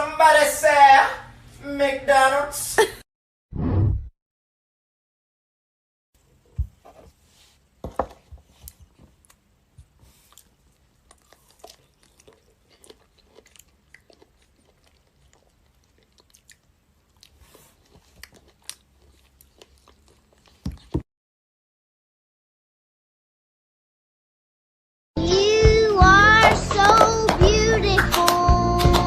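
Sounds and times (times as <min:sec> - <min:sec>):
animal chewing crunchy food: 0:08.4 - 0:21.0.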